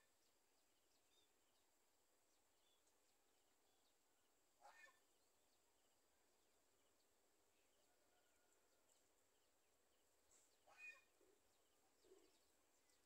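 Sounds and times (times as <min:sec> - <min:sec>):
faint bird call: 0:04.6 - 0:05.0, 0:10.3 - 0:11.4.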